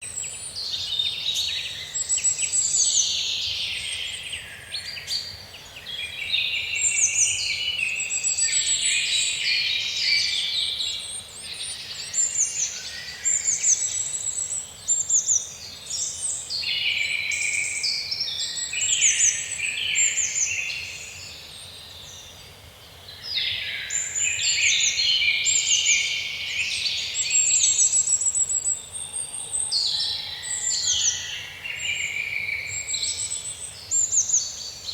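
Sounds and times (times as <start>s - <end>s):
songbirds chirping and trilling: 0.0s - 34.9s.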